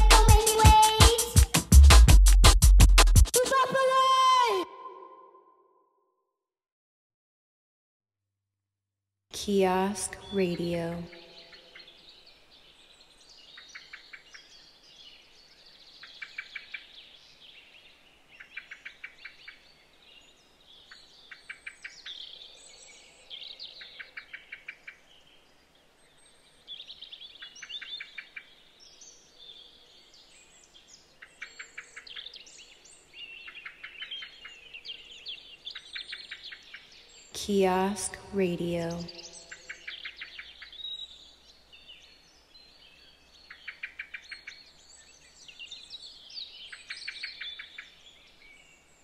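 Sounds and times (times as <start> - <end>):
bird chirps and tweets: 10.2 - 37.6, 38.9 - 49.0.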